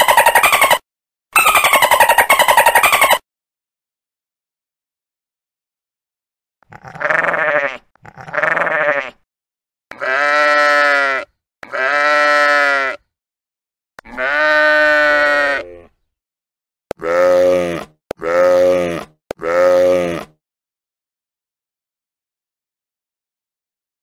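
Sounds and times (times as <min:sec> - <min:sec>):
sheep bleating: 0:06.6 - 0:09.2, 0:09.9 - 0:13.1, 0:14.0 - 0:15.9, 0:16.9 - 0:20.4.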